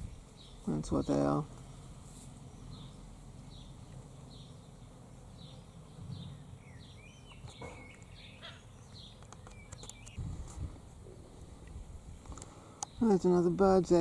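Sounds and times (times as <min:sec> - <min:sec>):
bird chirping: 0:02.4 - 0:10.2.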